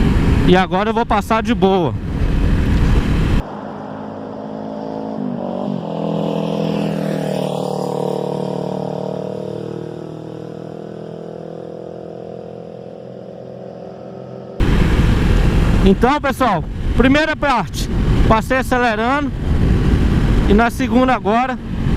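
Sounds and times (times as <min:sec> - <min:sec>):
motorcycle riding past: 0:02.9 - 0:15.8.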